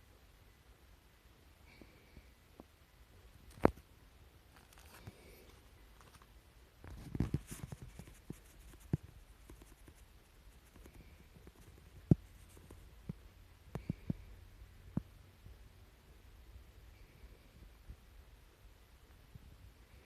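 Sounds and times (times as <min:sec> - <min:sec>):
handling rustle: 0:04.5 - 0:12.8.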